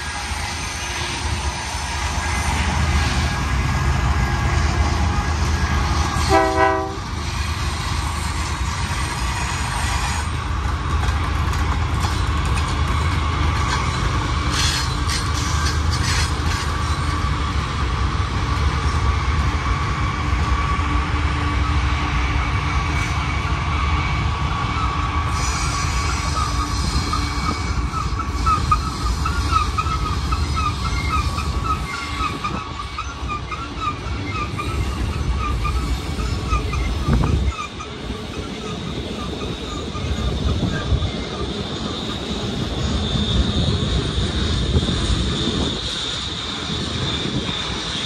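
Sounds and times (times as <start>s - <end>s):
train wheels rumbling on rail: 0.0s - 48.0s
high wheel squeal: 12.0s - 48.0s.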